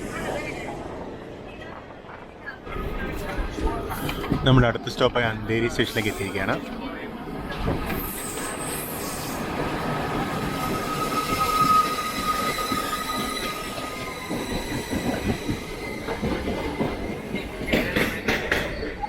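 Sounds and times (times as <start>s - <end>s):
train wheels squealing on rails: 7.5s - 19.0s.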